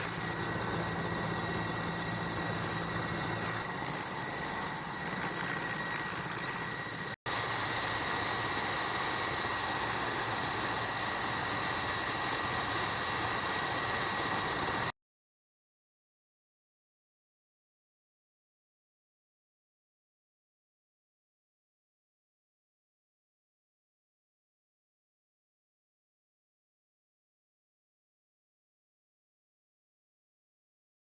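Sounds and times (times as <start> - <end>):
helicopter engine and rotor: 0.0 - 14.9.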